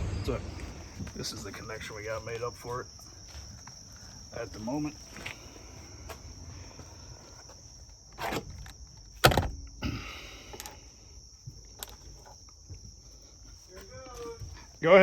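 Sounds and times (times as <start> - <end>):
crickets chirring: 0.0 - 15.0
knocks and clunks: 8.2 - 10.0.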